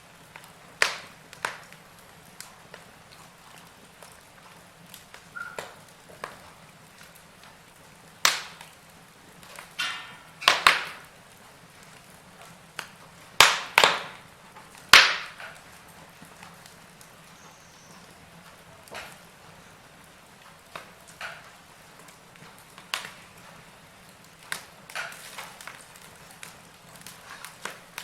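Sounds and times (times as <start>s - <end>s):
logs crackling in fireplace: 0.0s - 28.0s
loud sharp pops: 0.8s - 1.8s, 8.2s - 8.7s, 9.5s - 11.1s, 12.8s - 14.3s, 14.9s - 15.6s.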